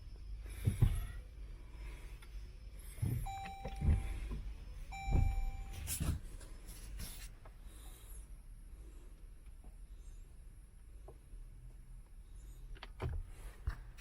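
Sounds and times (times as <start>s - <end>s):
dull low thumps: 2.9s - 5.8s
electronic beeps: 3.3s - 4.1s, 4.9s - 5.8s.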